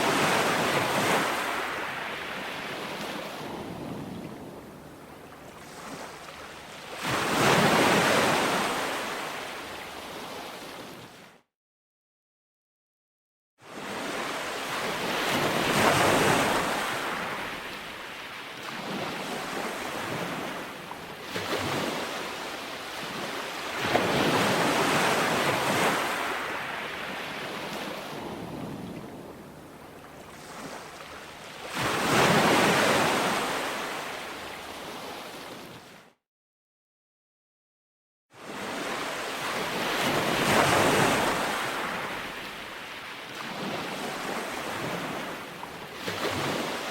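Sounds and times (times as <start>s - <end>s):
ocean surf breaking on shore: 0.0s - 11.3s, 13.7s - 36.0s, 38.4s - 46.9s.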